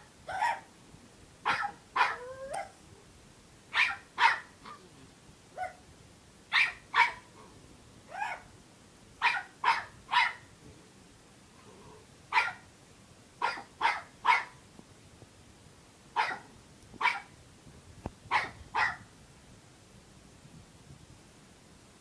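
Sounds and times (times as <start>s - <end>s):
puppy yapping: 0.3s - 0.7s, 1.5s - 2.8s, 3.7s - 4.8s, 6.5s - 7.3s, 8.1s - 8.5s, 13.4s - 14.6s, 16.2s - 16.4s.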